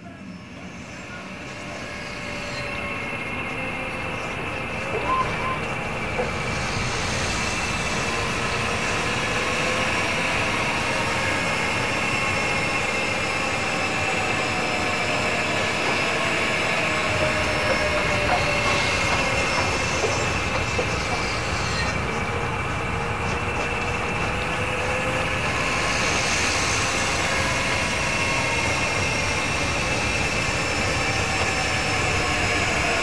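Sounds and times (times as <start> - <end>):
train rumbling on rails: 0.0 - 33.0
wheel squeal: 4.8 - 9.7, 16.8 - 22.3.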